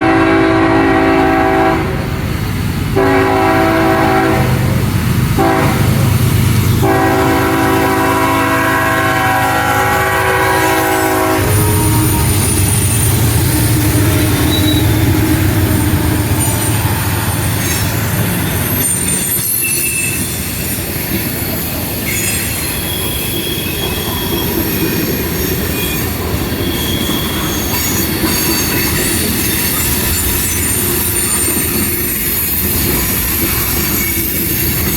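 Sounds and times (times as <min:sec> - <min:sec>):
train air horn blasts: 0:00.0 - 0:02.1, 0:03.0 - 0:04.7, 0:05.4 - 0:06.1, 0:06.8 - 0:18.0
train rumbling past: 0:00.0 - 0:34.9
wheels clacking over rail joints: 0:02.2 - 0:34.9
high wheel squeals: 0:06.9 - 0:34.9.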